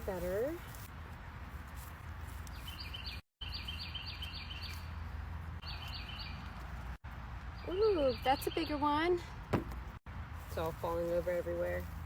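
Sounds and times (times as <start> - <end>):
small bird chirping: 2.4 - 5.0, 5.6 - 6.7.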